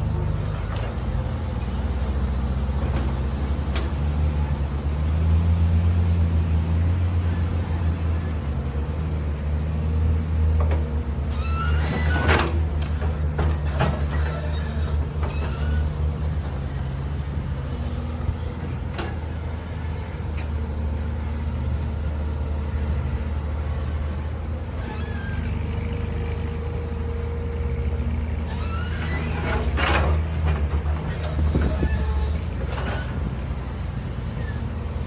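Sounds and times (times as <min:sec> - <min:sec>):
heavy machine engine humming: 0:00.0 - 0:35.0
knocks and clanks: 0:11.8 - 0:16.8.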